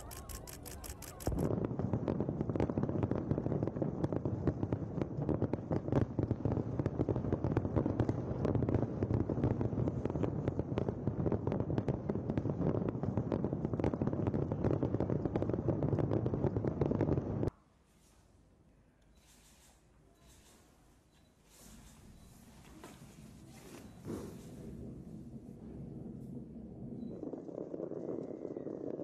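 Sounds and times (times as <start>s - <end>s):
fireworks bangs and crackles: 0.0s - 17.5s, 23.4s - 29.0s
heavy rumble: 24.4s - 29.0s.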